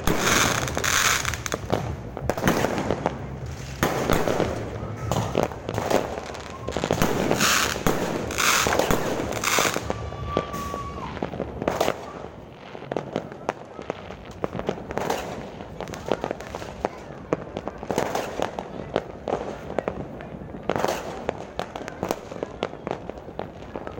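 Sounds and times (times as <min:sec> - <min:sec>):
fireworks hissing bursts: 0:00.0 - 0:16.9
fireworks bangs and crackles: 0:00.0 - 0:23.9
firework whistle: 0:04.2 - 0:12.4.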